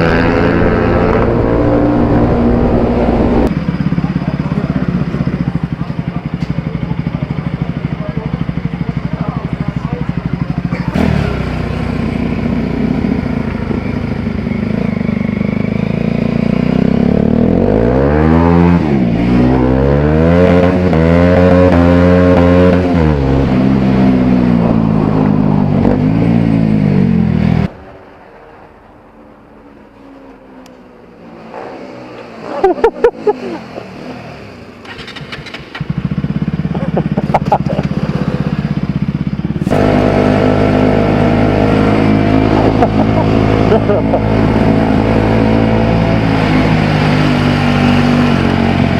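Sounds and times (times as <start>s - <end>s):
motorcycle engine revving: 0.0s - 27.9s, 28.7s - 48.9s.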